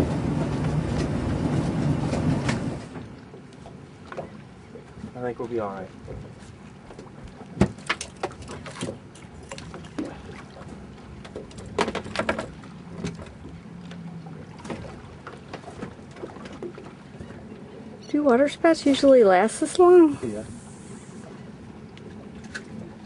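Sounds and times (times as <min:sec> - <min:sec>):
knocks against boat hull: 0:07.6 - 0:07.8.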